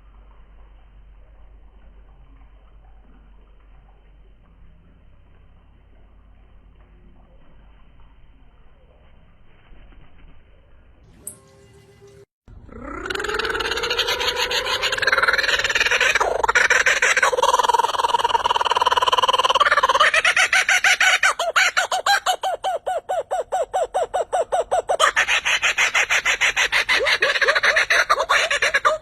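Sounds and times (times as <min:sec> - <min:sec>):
chickens clucking: 0:13.8 - 0:29.0.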